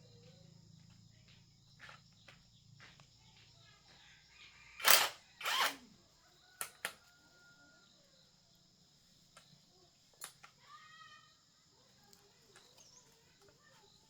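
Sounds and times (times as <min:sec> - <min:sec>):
sharp clicks: 0:04.8 - 0:05.8.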